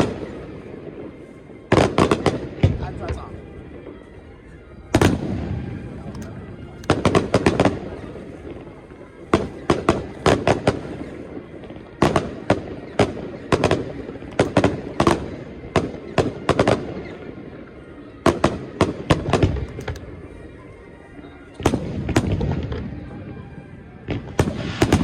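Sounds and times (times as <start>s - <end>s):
firework shells bursting: 19.2s - 20.1s.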